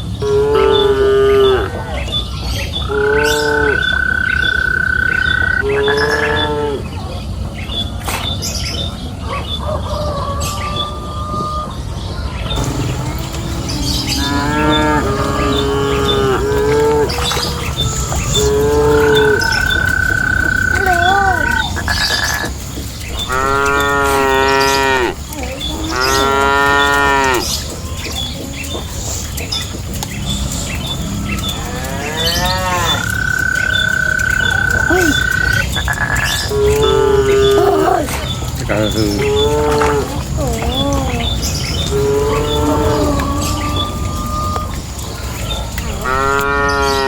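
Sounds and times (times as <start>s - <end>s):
cattle mooing: 2.8s - 6.8s, 12.6s - 22.4s, 23.2s - 27.7s, 30.3s - 38.0s, 38.6s - 45.0s, 45.8s - 47.0s.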